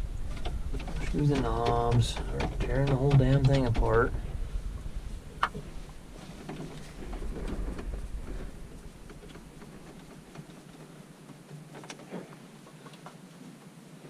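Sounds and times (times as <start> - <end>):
low rumble: 0.0 - 10.4
hand tools clicking and rattling: 0.3 - 4.1.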